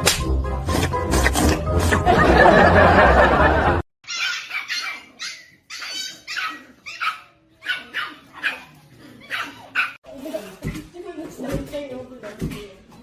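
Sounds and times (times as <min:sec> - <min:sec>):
dog barking: 0:04.1 - 0:10.0.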